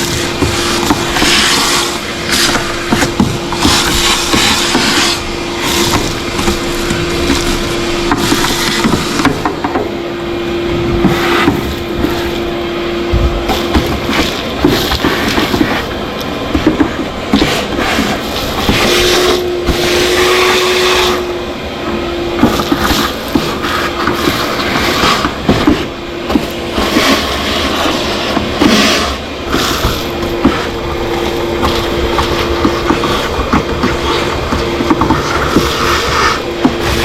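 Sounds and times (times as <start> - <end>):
debris crackling in a hose: 0.0 - 9.4
shop vac motor whine: 0.0 - 37.0.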